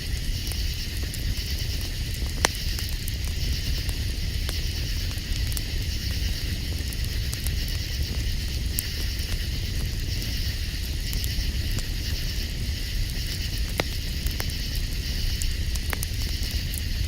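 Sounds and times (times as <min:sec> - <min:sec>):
campfire crackling: 0:00.0 - 0:17.0
night insects chirping: 0:00.0 - 0:17.0.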